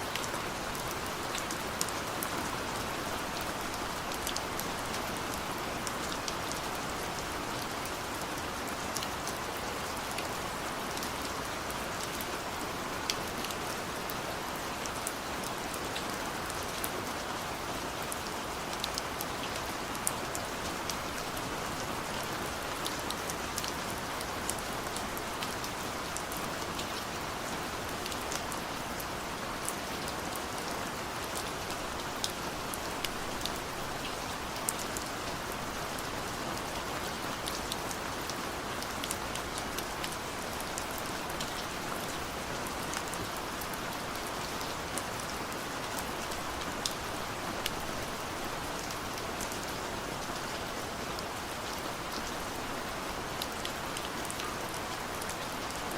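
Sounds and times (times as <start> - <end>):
steady rain hiss: 0.0 - 55.9.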